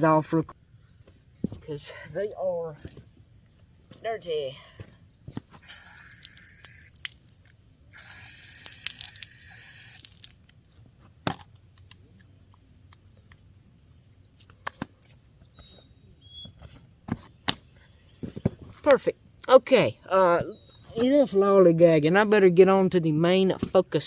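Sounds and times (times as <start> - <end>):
water dripping: 5.6 - 10.8
water running over hands: 7.9 - 10.4.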